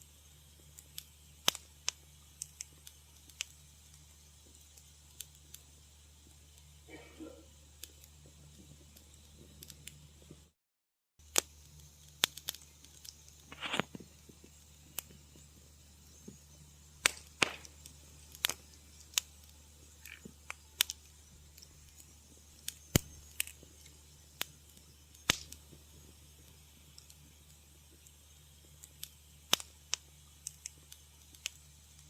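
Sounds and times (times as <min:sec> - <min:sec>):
faint low hum: 0:00.0 - 0:10.5
wood fire crackling: 0:00.0 - 0:10.6, 0:11.2 - 0:32.0.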